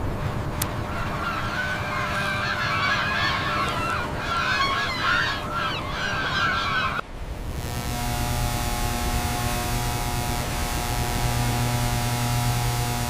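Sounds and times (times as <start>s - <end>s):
steady low rumble: 0.0s - 13.0s
flock of birds calling: 0.6s - 7.0s.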